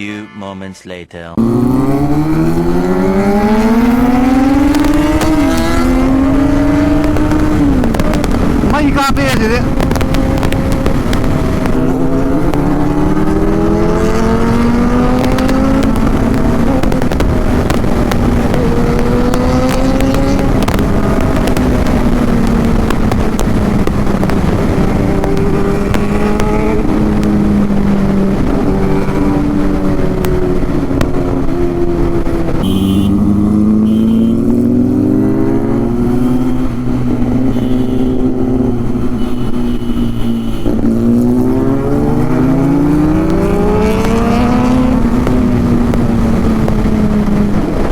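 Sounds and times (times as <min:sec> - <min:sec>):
motorcycle engine revving: 0:01.4 - 0:47.9.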